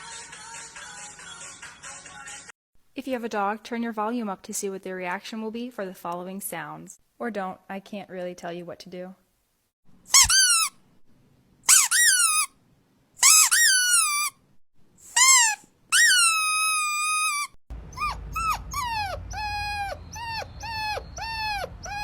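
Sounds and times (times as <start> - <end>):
dog whining: 11.7 - 12.5, 13.2 - 14.3, 15.1 - 22.0
low background hum: 17.7 - 22.0.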